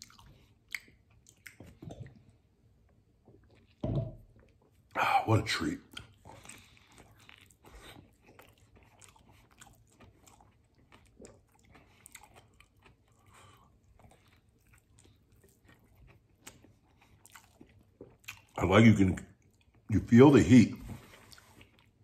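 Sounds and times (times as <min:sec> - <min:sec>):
wet mouth clicks: 0:00.0 - 0:02.1
person chewing food: 0:00.0 - 0:05.0, 0:05.8 - 0:18.6, 0:21.0 - 0:22.0.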